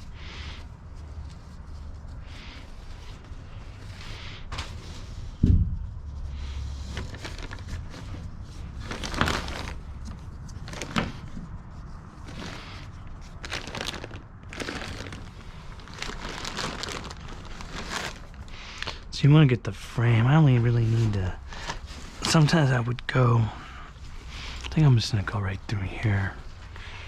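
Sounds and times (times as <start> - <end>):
heavy thump: 5.4 - 6.0
cargo gear scraping and rustling: 6.6 - 18.6.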